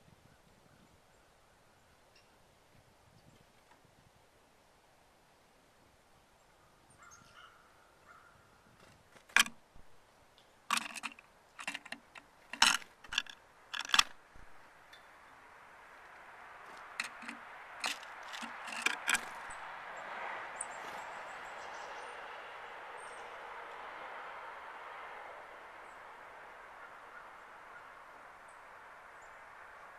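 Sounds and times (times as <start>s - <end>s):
sharp clicks and taps: 10.7s - 14.2s, 16.8s - 19.6s.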